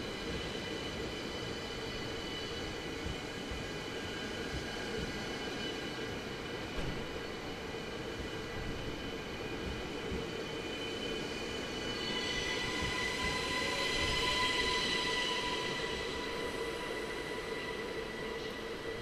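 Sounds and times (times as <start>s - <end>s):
electric train rumbling: 0.0s - 19.0s
train high whine: 0.0s - 19.0s.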